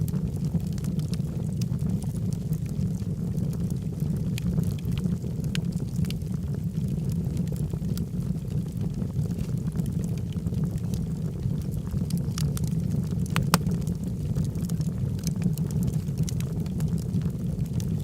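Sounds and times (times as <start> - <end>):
fire crackling and popping: 0.0 - 18.0
flames rumbling: 0.0 - 18.0.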